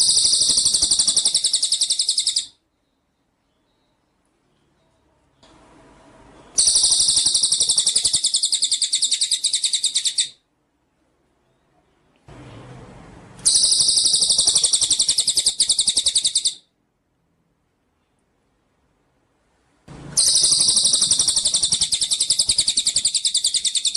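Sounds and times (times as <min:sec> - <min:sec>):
songbird trilling: 0:00.0 - 0:02.6, 0:06.6 - 0:10.4, 0:13.4 - 0:16.7, 0:20.2 - 0:23.9.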